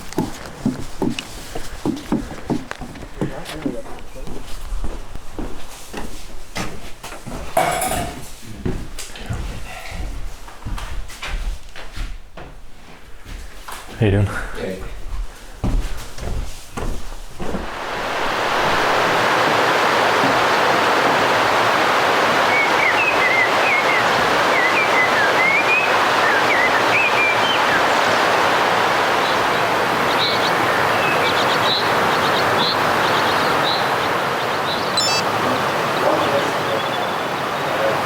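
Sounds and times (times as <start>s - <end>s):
running water rushing: 0.0s - 5.4s, 6.0s - 10.8s, 16.0s - 38.0s
knocks: 7.4s - 10.8s
bird chirping: 22.5s - 28.0s, 30.1s - 35.3s, 35.9s - 37.9s.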